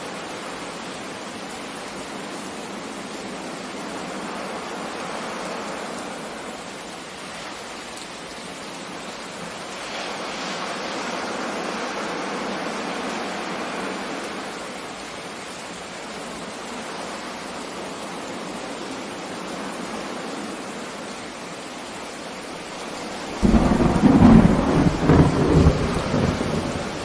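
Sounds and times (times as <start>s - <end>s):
steady rain: 0.0s - 27.0s
sea noise: 9.7s - 14.7s, 22.5s - 27.0s
thunderclap rumbling: 23.3s - 27.0s.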